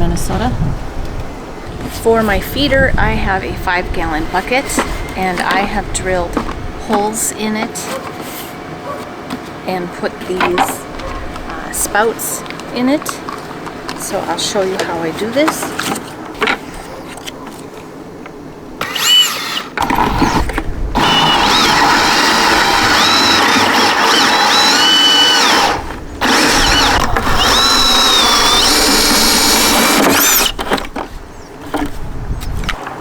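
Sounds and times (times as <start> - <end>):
power drill boring plastic: 18.8 - 30.9.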